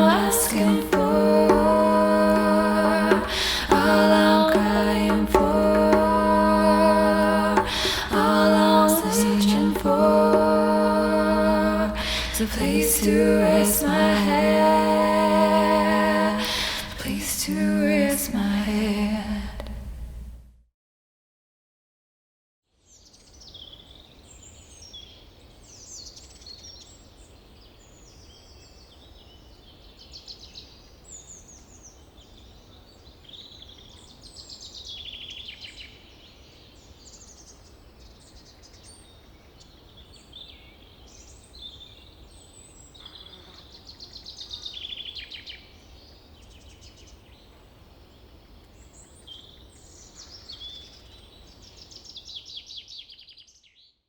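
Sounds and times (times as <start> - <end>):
low steady rumble: 0.0 - 20.6.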